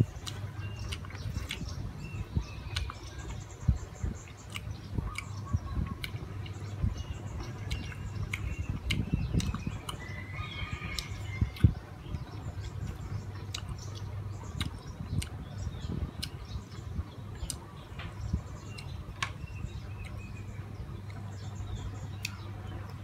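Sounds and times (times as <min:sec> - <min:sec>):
faint birds chirping: 0:00.0 - 0:23.0
wet mouth clicks and smacks: 0:00.2 - 0:01.8, 0:02.7 - 0:03.0, 0:04.3 - 0:05.4, 0:07.6 - 0:10.0, 0:13.5 - 0:15.4.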